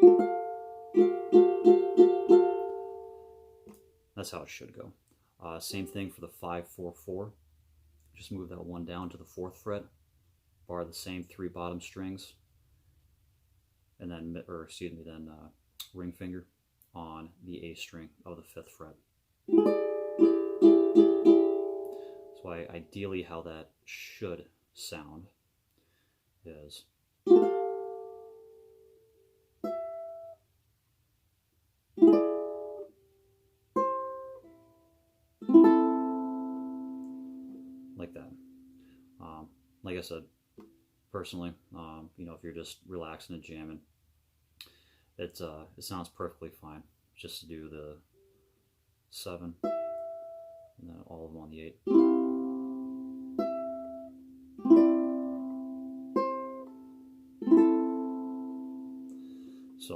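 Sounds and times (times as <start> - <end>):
ukulele chords strummed: 0.0 - 4.0, 19.5 - 23.0, 27.2 - 29.0, 29.6 - 30.4, 32.0 - 33.1, 33.7 - 39.6, 49.6 - 50.7, 51.8 - 59.9.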